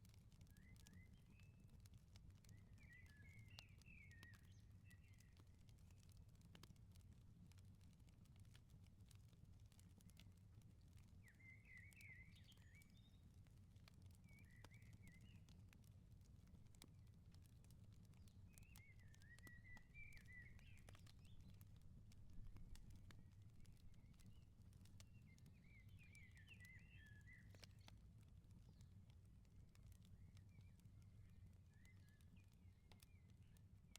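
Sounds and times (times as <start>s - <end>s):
wood fire crackling: 0.0s - 33.9s.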